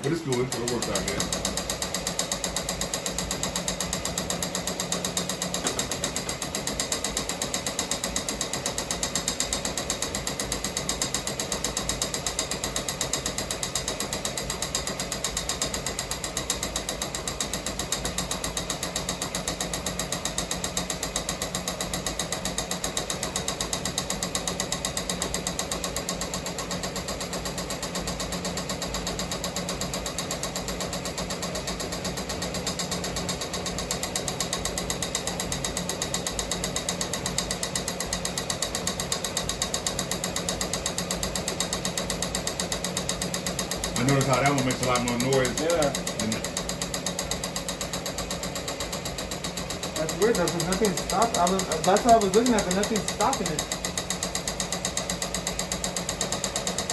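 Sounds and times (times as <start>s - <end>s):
embroidery machine clatter: 0.0s - 56.9s.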